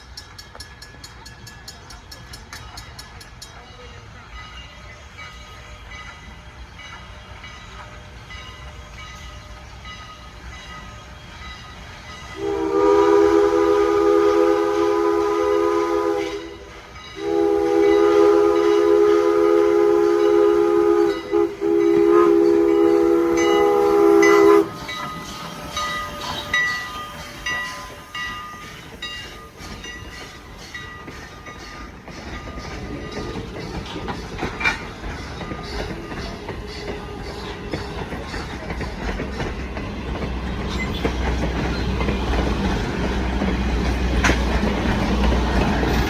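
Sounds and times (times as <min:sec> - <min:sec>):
train wheels clattering: 0:00.0 - 0:46.0
train horn blasts: 0:12.3 - 0:25.0, 0:25.7 - 0:28.2.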